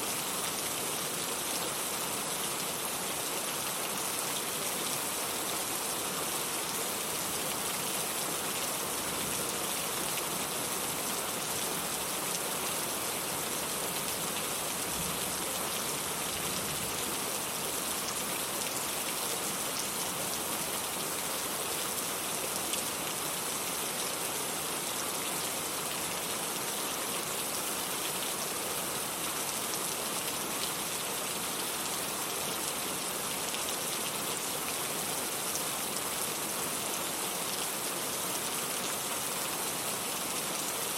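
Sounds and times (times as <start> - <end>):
rain hiss: 0.0 - 40.9.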